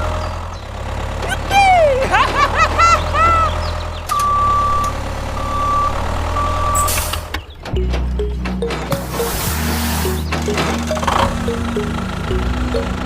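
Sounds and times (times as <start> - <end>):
low engine hum: 0.0 - 13.0
reversing alarm beeps: 4.1 - 7.0.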